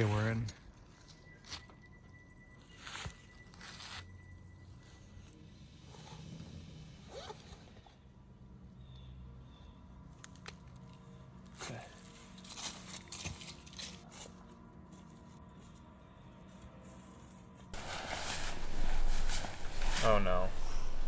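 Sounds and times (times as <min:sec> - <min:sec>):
gear rustling and scraping: 0:12.0 - 0:14.5, 0:17.8 - 0:21.0
short rasps: 0:17.8 - 0:21.0.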